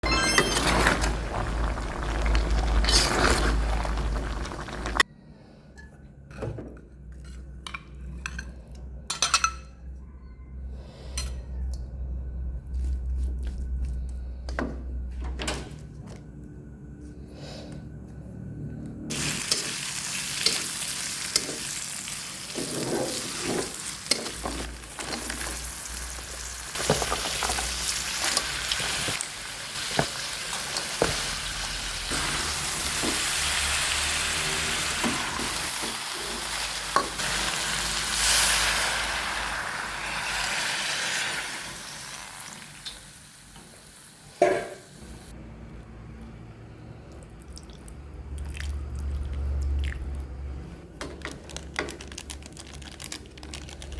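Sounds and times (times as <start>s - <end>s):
spice paste sizzling in a pan: 19.1s - 24.1s, 24.7s - 44.2s.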